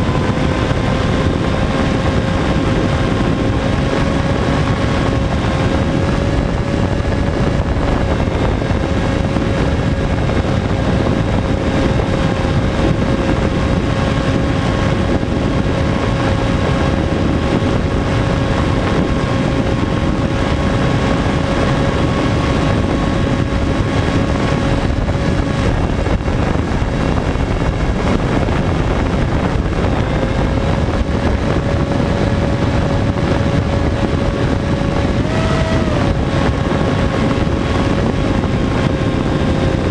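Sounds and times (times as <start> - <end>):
wind rush over microphone: 0.0 - 39.9
electric motor whine: 31.7 - 39.8.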